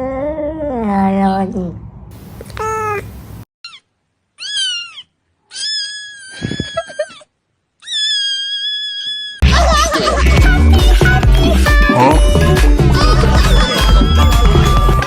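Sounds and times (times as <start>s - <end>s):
cat meowing: 2.5s - 7.2s, 7.8s - 9.4s
music: 9.4s - 15.0s.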